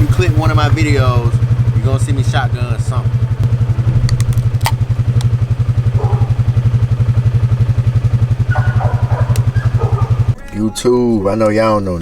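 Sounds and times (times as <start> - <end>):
loud engine idling: 0.0 - 10.4
sharp clicks: 9.3 - 9.8.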